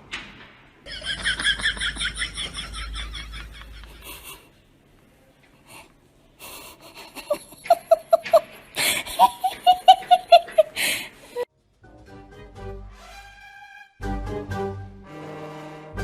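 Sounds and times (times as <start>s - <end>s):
person laughing: 0.9s - 4.5s, 6.4s - 11.4s
music: 11.5s - 16.0s.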